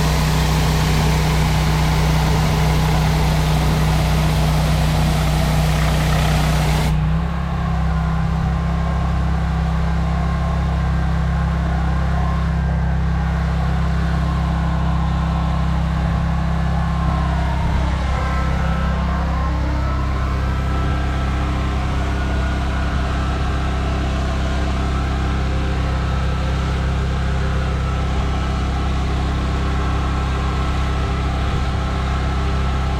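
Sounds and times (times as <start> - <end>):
high-pressure spray hissing: 0.0 - 6.9
pressure washer engine running: 0.0 - 32.9.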